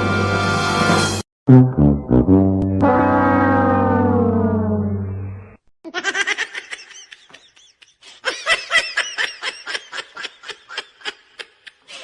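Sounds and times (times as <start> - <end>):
low falling horn-like tone: 1.5 - 5.6.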